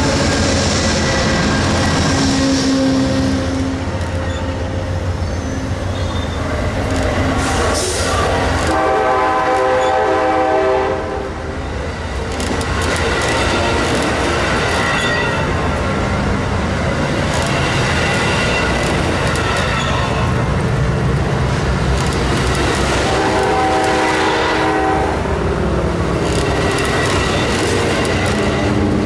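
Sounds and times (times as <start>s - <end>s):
train rumbling: 0.0s - 29.0s
locomotive horn chord: 8.6s - 11.3s, 23.1s - 25.3s.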